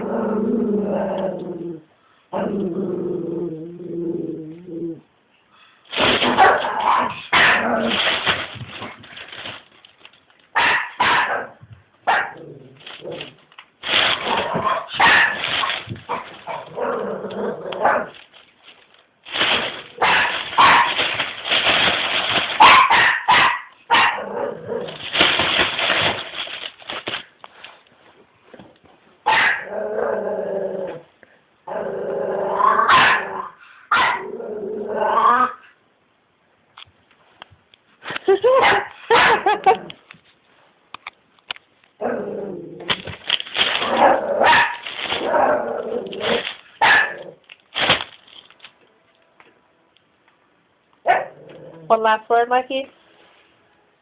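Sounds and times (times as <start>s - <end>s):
puppy barking and growling: 6.0s - 9.0s, 10.5s - 18.2s, 19.4s - 25.4s, 29.2s - 31.0s, 31.7s - 35.7s, 38.4s - 39.9s, 43.6s - 47.4s, 51.0s - 51.9s.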